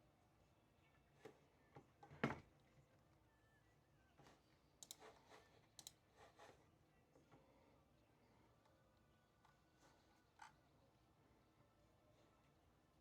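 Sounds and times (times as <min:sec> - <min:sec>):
small clicks and taps: 0:04.8 - 0:05.1, 0:05.8 - 0:06.0.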